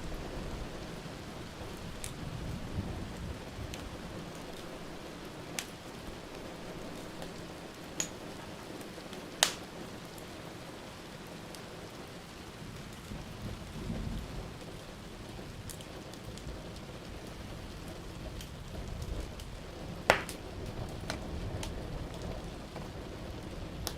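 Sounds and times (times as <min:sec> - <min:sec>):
rain hiss: 0:00.0 - 0:23.9
wood fire pops: 0:05.5 - 0:05.8, 0:07.2 - 0:08.3, 0:09.4 - 0:09.7, 0:20.1 - 0:21.8.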